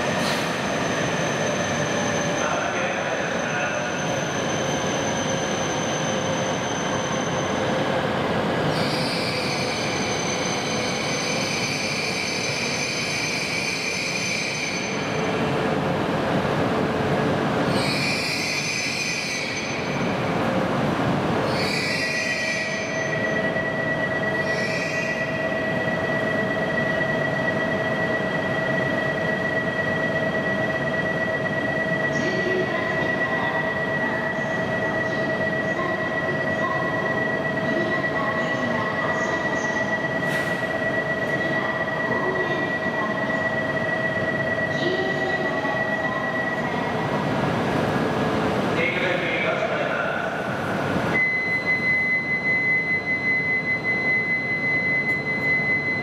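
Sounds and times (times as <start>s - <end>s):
steady high-pitched tones: 51.0s - 56.0s.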